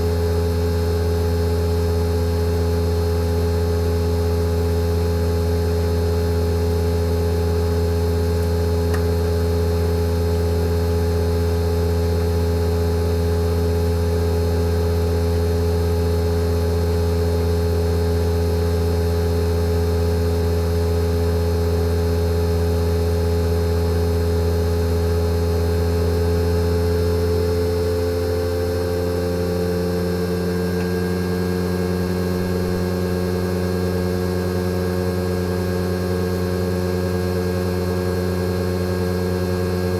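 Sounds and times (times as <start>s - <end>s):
air conditioner compressor humming: 7.0s - 11.0s, 28.1s - 36.8s.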